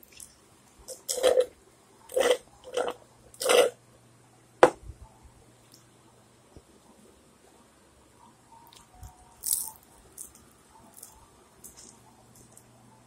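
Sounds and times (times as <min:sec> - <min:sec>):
chewing crunchy rice cake: 0:08.7 - 0:12.7.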